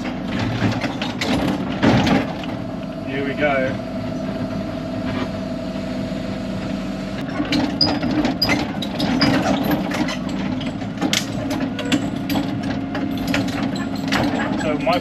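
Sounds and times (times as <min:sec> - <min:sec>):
excavator diesel engine running: 0:00.0 - 0:15.0
machine clicks and clanks: 0:07.3 - 0:15.0.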